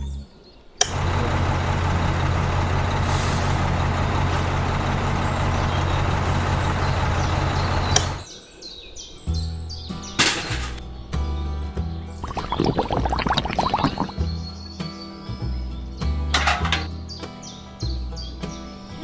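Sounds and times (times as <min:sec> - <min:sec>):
heavy truck engine running: 0:00.9 - 0:08.2.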